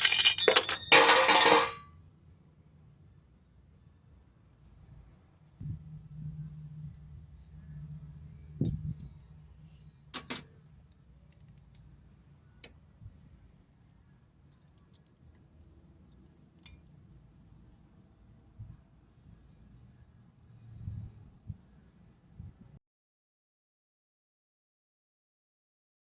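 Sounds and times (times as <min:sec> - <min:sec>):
tools clicking and tapping: 0:00.0 - 0:01.8, 0:10.2 - 0:10.5.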